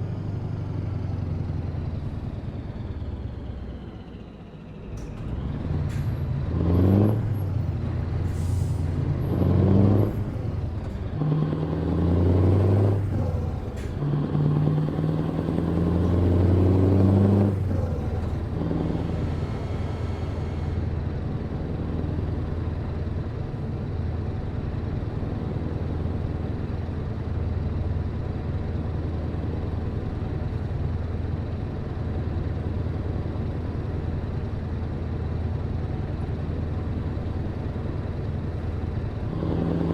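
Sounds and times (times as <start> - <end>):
diesel truck engine accelerating: 0.0 - 39.9.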